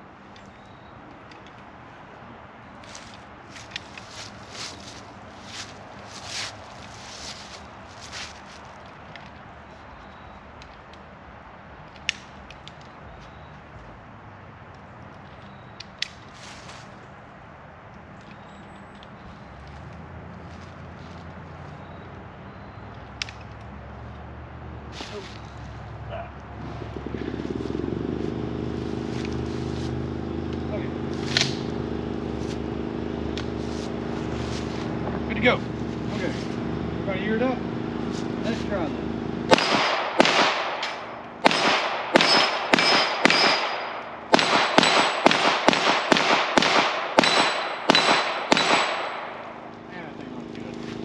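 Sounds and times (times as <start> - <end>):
motor engine running: 26.4 - 39.6, 49.7 - 51.0
pistol shots: 39.5 - 49.6.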